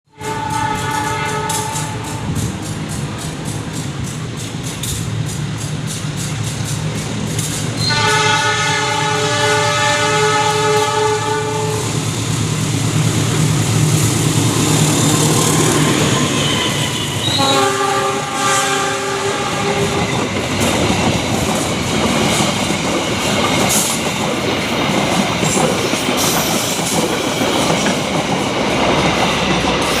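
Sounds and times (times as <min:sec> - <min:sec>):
locomotive horn blasts: 0:00.1 - 0:02.3, 0:07.8 - 0:12.0, 0:16.3 - 0:20.1
clattering train wheels: 0:00.1 - 0:30.0
rushing wind: 0:00.1 - 0:30.0
locomotive engine drone: 0:10.7 - 0:24.5.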